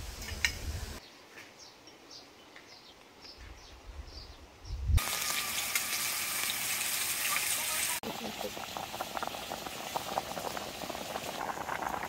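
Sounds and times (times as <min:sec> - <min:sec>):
wind rumbling on microphone: 0:03.6 - 0:05.0
pot boiling on a stove: 0:05.0 - 0:12.0.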